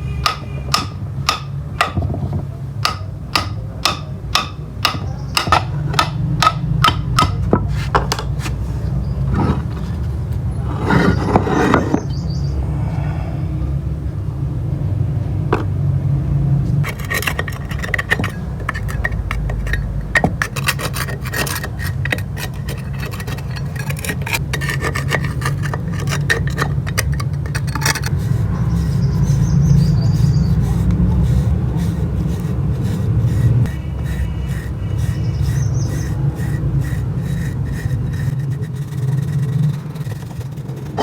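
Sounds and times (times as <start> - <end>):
metal scraping: 9.2 - 12.1, 16.6 - 41.0
steady hum: 16.2 - 41.0.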